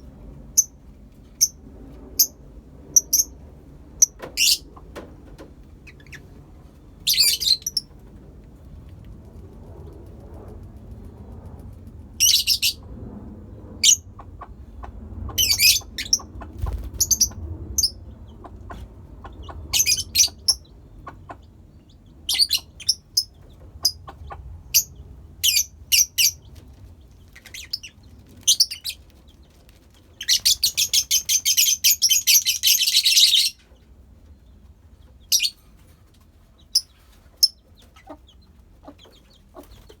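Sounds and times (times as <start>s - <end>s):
lovebirds chirping: 7.0s - 7.9s, 15.4s - 18.0s.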